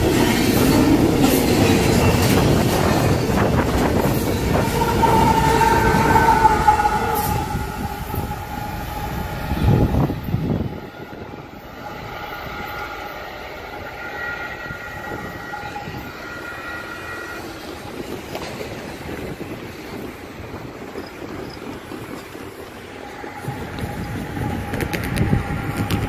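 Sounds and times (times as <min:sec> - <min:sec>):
freight train rumbling: 0:00.0 - 0:26.0
steady high tones: 0:00.6 - 0:18.0.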